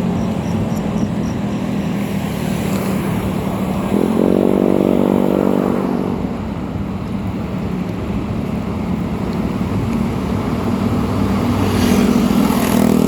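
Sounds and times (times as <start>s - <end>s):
higher-toned engine: 0.0s - 7.7s
vehicle engine running: 0.0s - 13.0s.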